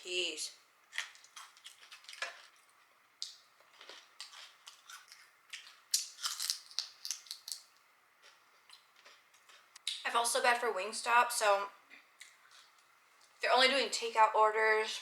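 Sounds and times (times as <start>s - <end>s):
chewing crispy fried chicken: 0.9s - 10.0s.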